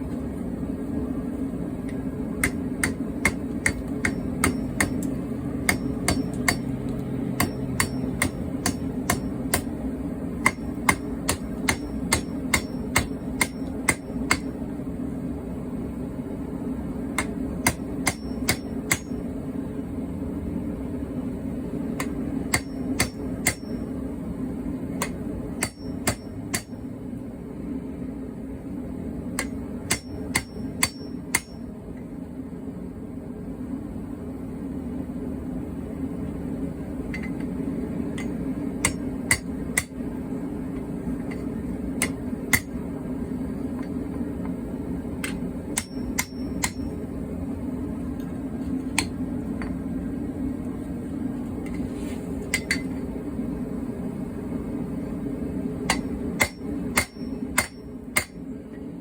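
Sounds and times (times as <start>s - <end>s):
hammer striking steel on anvil: 1.9s - 9.8s, 10.4s - 14.6s, 17.1s - 19.3s, 22.0s - 24.0s, 24.9s - 26.8s, 29.4s - 31.7s, 37.1s - 37.5s, 38.1s - 40.0s, 40.8s - 42.8s, 45.2s - 47.0s, 48.9s - 49.8s, 52.5s - 53.0s, 55.8s - 58.4s.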